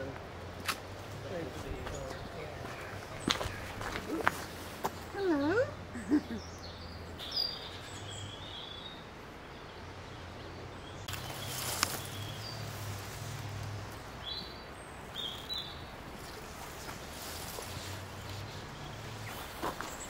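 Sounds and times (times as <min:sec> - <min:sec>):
small birds chirping: 0:00.0 - 0:20.0
rustle and click: 0:11.1 - 0:14.0.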